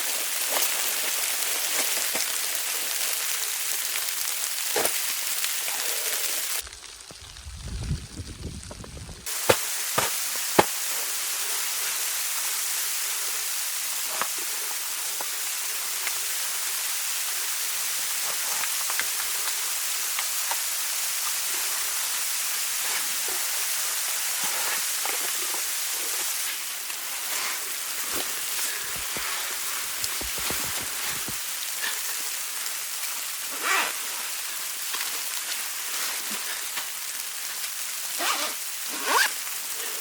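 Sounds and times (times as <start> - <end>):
hiss of falling rain: 0.0 - 40.0
low rumble: 6.7 - 9.3.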